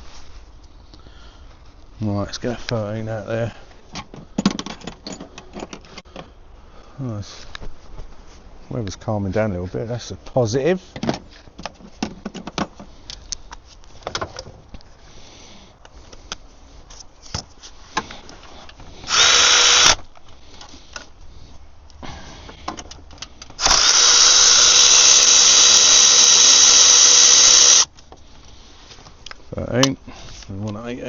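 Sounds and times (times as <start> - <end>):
cordless power tool spinning bolt: 19.1 - 20.0, 23.6 - 27.9.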